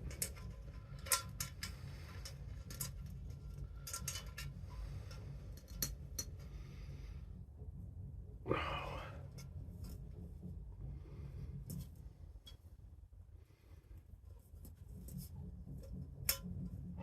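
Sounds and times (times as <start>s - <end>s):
helmet strap hardware clicking: 0.0s - 6.5s
low steady hum: 0.0s - 17.0s.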